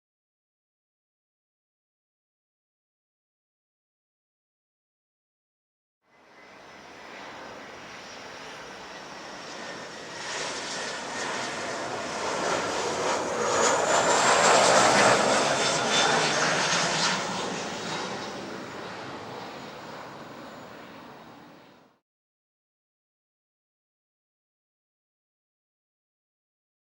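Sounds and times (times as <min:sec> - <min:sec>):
jet engines roaring: 0:06.2 - 0:21.9.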